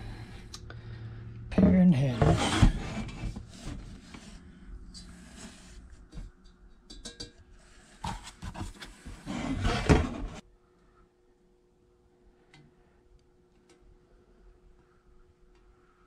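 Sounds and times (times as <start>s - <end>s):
rustling and scraping of parts: 1.6s - 10.4s.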